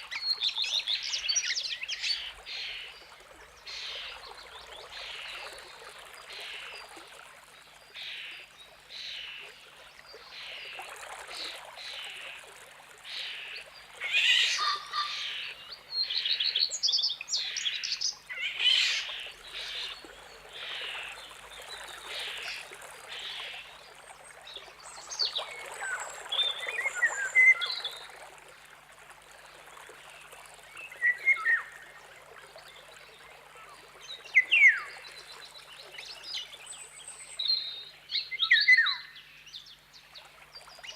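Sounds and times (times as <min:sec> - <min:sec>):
short raspy bird calls: 0:14.0 - 0:15.6
thin whistled bird song: 0:24.6 - 0:28.1, 0:30.7 - 0:32.0, 0:32.8 - 0:40.9.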